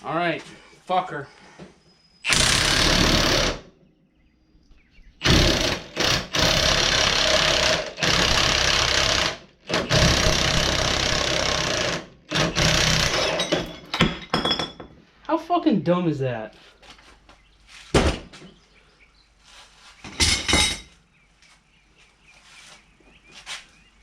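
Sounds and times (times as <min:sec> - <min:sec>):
pneumatic impact wrench hammering: 0:02.2 - 0:03.7, 0:05.2 - 0:14.3.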